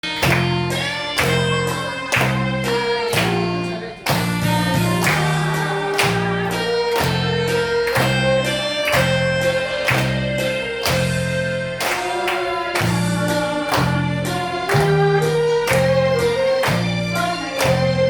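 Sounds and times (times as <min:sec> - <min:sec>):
backing track with beat and bass: 0:00.0 - 0:18.0
saxophone melody: 0:00.0 - 0:18.0.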